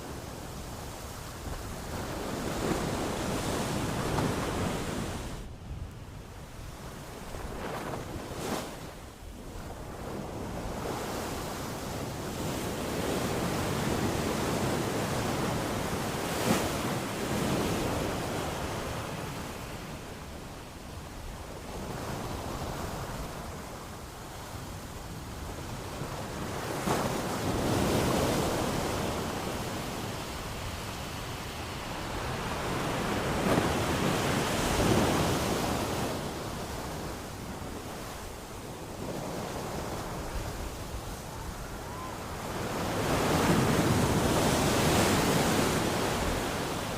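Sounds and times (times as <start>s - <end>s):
ocean waves breaking: 25.8s - 46.9s.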